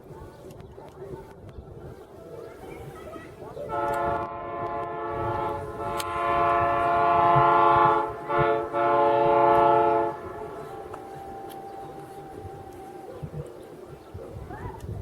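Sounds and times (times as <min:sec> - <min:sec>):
locomotive air horn blasts: 0:03.7 - 0:13.1.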